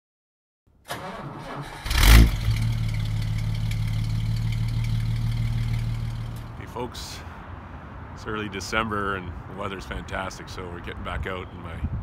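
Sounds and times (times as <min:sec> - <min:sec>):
car engine starting and idling: 0:00.9 - 0:06.6.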